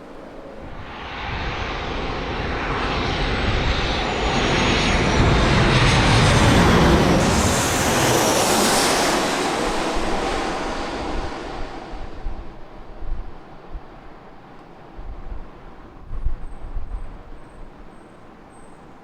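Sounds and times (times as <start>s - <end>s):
jet engines roaring: 0.0s - 13.8s
high fan whine: 0.0s - 14.4s.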